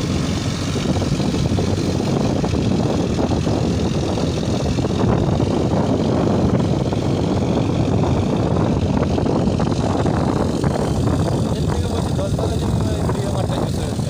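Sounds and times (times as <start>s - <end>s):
tractor engine under load: 0.0s - 14.0s.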